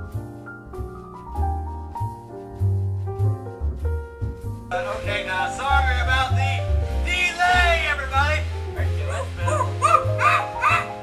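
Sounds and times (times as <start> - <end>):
background music low notes: 0.0 - 11.0
yelping animal-like cries: 9.4 - 11.0.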